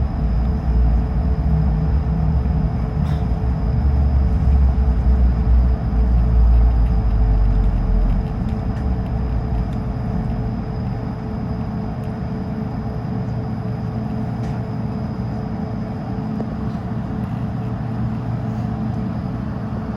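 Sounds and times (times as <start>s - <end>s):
aircraft cabin rumble: 0.0s - 19.9s
jet engines humming: 0.0s - 19.9s.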